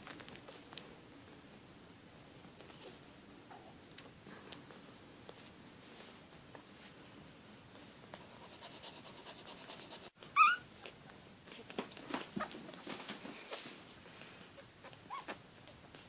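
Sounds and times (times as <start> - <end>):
soft rustling: 3.8 - 8.6, 10.2 - 16.0
puppy squeak: 10.3 - 10.7, 14.9 - 15.4.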